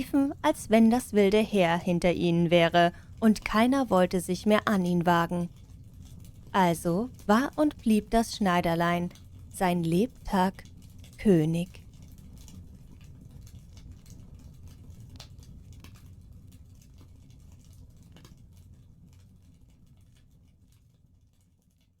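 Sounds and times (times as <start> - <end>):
wood fire crackling: 0.0 - 21.4.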